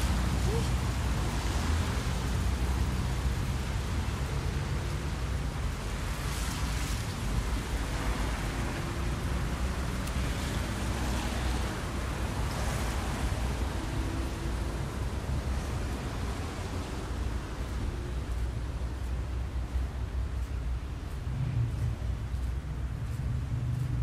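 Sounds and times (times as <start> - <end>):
heavy low rumble: 18.7 - 24.0.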